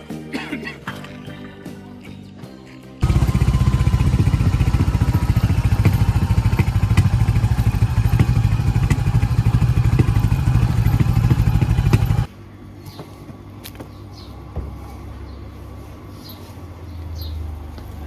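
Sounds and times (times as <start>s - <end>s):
motorcycle engine running: 3.0s - 12.3s.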